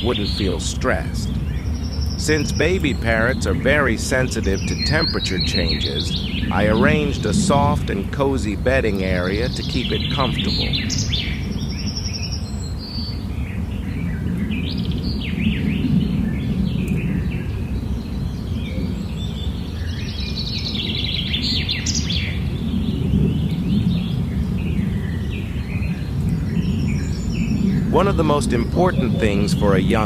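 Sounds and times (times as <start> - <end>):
high bird chirps: 0.0 - 8.2, 8.9 - 30.0
low background noise: 0.0 - 30.0.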